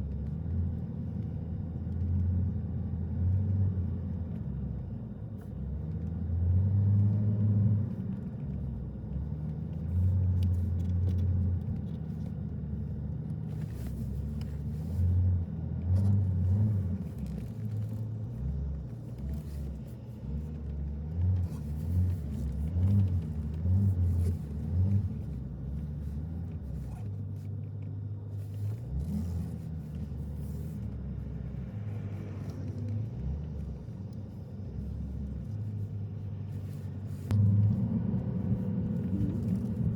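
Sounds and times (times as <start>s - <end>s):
car tyres and engine rumble: 0.0s - 39.9s.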